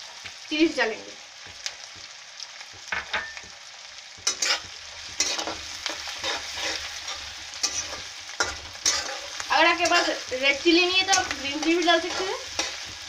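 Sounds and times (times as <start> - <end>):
onions frying in oil: 0.0 - 13.0
spatula scraping metal pan: 4.2 - 10.3, 11.0 - 12.9.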